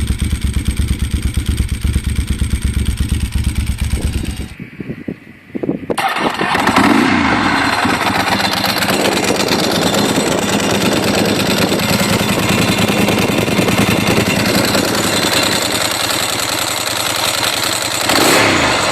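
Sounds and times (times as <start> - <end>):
motorcycle engine idling: 0.0 - 4.6, 6.0 - 18.9.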